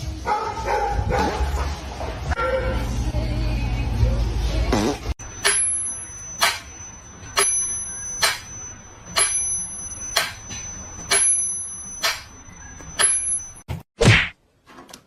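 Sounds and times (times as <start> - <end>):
high bell-like ring: 5.2 - 13.6.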